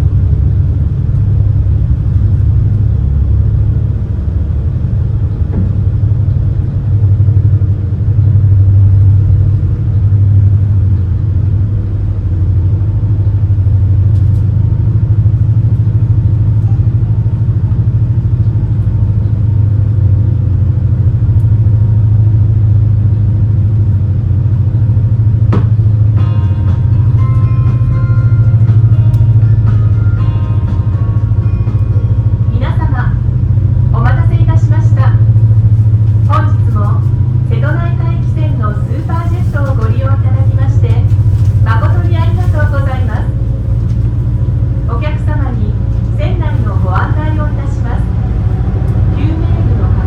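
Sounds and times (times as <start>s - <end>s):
boat engines droning: 0.0s - 50.0s
steady tones: 24.2s - 50.0s.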